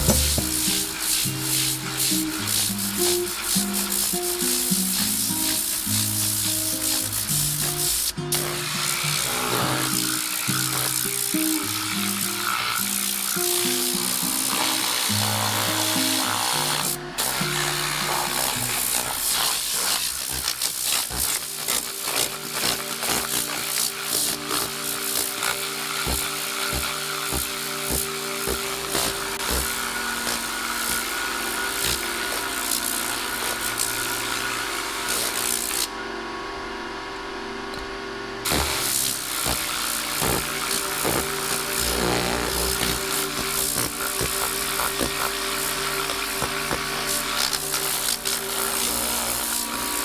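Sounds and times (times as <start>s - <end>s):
compressed air hissing: 0.0s - 35.9s, 38.5s - 50.0s
background music: 20.2s - 35.9s, 38.4s - 50.0s.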